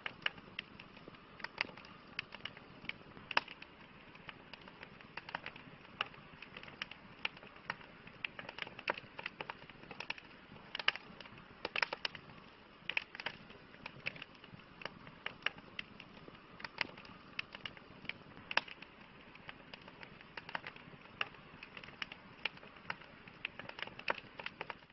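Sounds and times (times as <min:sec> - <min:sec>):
campfire crackling and popping: 0:00.0 - 0:24.9
low hiss of flames: 0:00.0 - 0:24.9.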